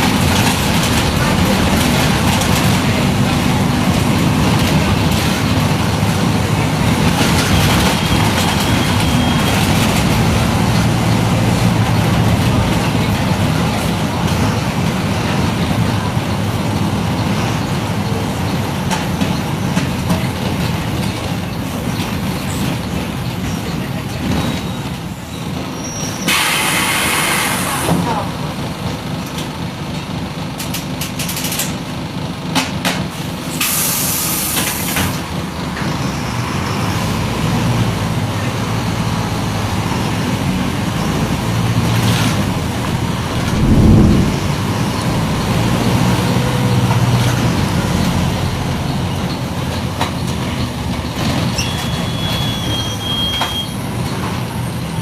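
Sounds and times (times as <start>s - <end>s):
road rumble: 0.0s - 25.8s, 35.1s - 52.1s
bus diesel engine drone: 0.0s - 26.0s, 26.7s - 55.0s.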